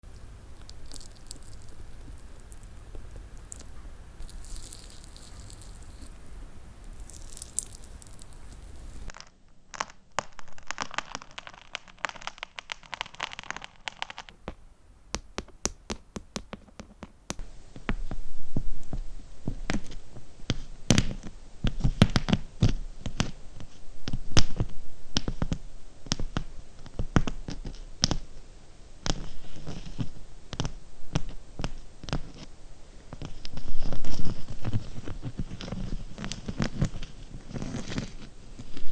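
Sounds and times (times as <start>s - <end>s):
fingernail tapping on gems: 14.5s - 17.4s.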